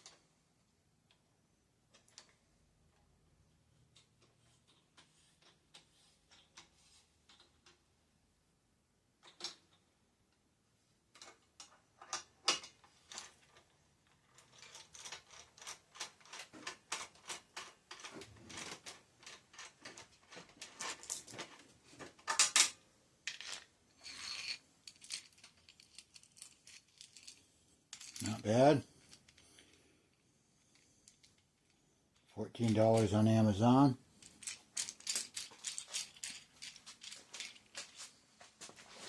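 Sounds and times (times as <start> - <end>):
metal tools clicking and scraping: 22.2 - 29.8, 34.1 - 38.1.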